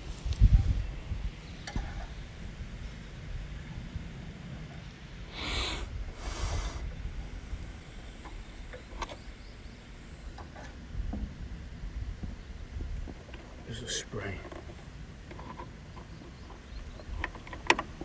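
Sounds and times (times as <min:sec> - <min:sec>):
aerosol spray can hissing: 0:05.3 - 0:06.9.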